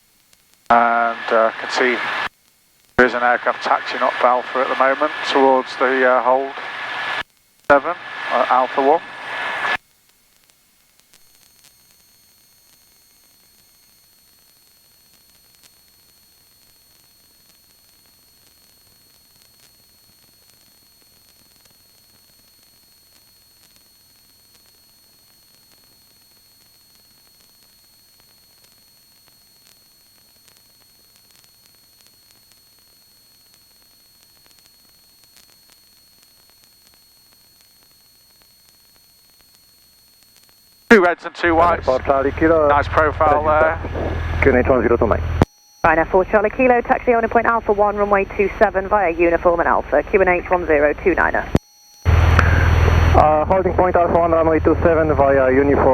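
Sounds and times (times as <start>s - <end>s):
electronic hiss: 0.7s - 2.3s, 3.0s - 9.8s, 33.5s - 55.9s
high steady whines: 0.7s - 2.3s, 3.0s - 9.8s, 11.2s - 55.9s.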